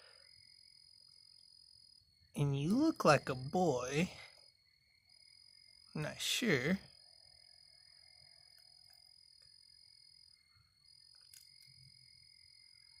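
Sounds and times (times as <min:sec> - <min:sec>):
faint clicks: 0:11.1 - 0:11.9.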